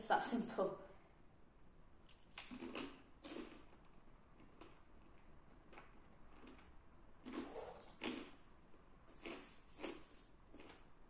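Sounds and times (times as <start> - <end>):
mouth noises from eating: 2.1 - 11.0.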